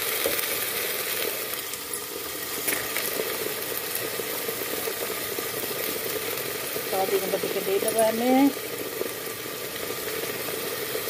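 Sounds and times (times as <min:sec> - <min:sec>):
paste sizzling in hot oil: 0:00.0 - 0:11.0.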